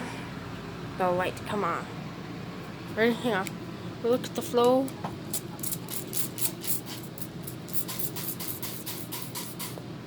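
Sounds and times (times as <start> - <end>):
spray bottle squirting: 5.3 - 9.8.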